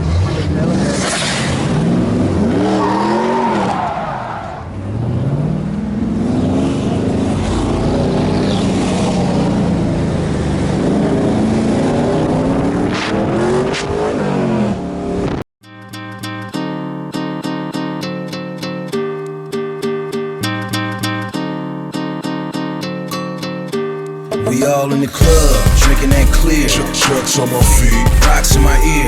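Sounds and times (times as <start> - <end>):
car engine revving hard: 0.0 - 3.7, 4.7 - 15.4.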